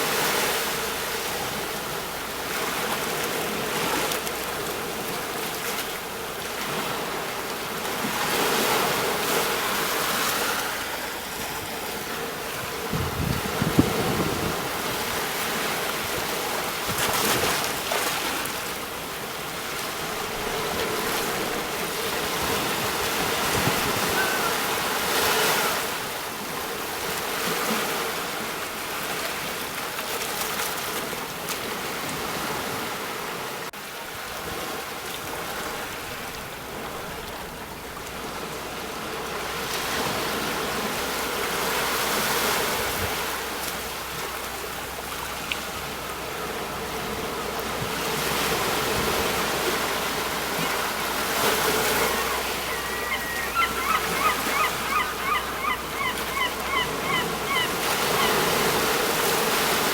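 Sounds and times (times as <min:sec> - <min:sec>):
sea waves breaking on shore: 0:00.0 - 0:59.9.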